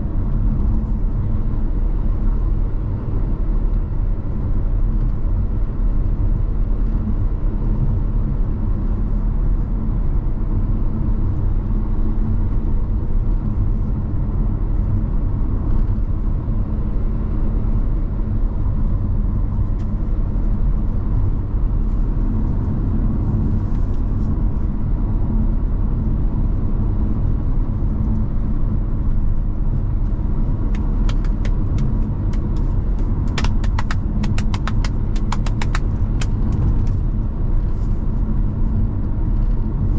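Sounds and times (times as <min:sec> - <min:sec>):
car engine and tyre noise: 0:00.0 - 0:39.9
sharp irregular ticks: 0:30.7 - 0:37.0.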